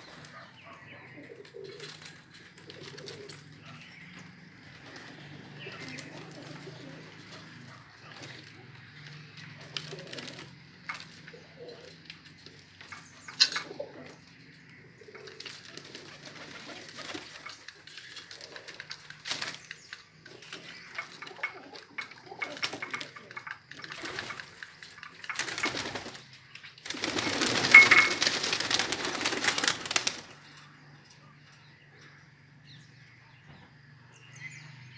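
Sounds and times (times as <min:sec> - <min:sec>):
pigeons scuffling: 0:00.0 - 0:30.8
pigeon wings flapping: 0:04.7 - 0:11.4, 0:15.1 - 0:30.5.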